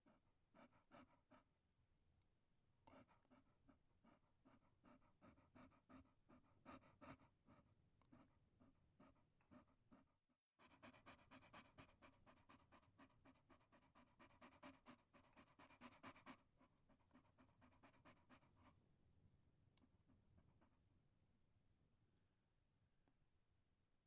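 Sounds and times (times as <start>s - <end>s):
dog panting rapidly: 0.0s - 1.5s, 2.9s - 18.8s.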